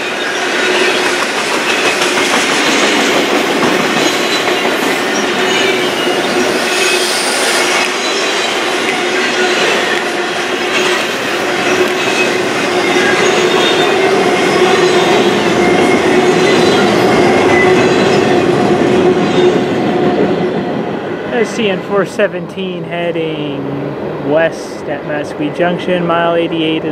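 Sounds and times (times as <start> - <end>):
train wheels squealing: 0.0 - 3.2, 3.8 - 20.5
freight train wheels rumbling on track: 0.0 - 26.9.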